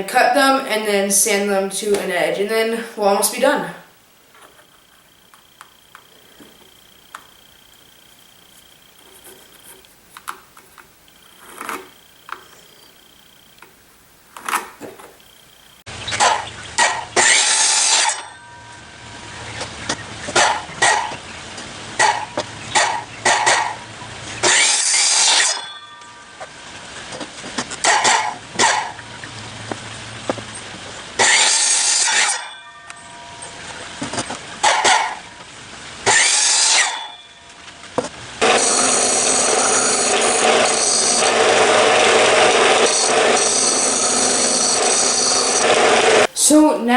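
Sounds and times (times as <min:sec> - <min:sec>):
miter saw cutting wood: 0:16.0 - 0:18.5, 0:22.0 - 0:25.7, 0:31.2 - 0:32.7, 0:36.0 - 0:37.2, 0:38.4 - 0:46.3
saw blade winding down: 0:16.8 - 0:18.8, 0:24.4 - 0:25.9, 0:31.2 - 0:32.9, 0:36.0 - 0:37.2, 0:38.4 - 0:46.3
loud noise: 0:27.8 - 0:37.5, 0:38.2 - 0:46.4.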